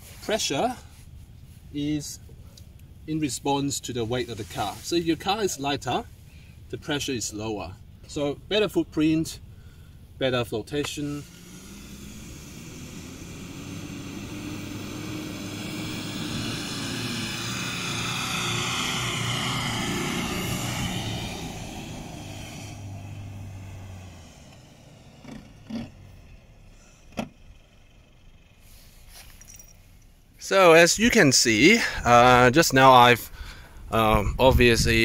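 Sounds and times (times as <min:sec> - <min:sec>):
engine working hard: 0:10.8 - 0:30.0.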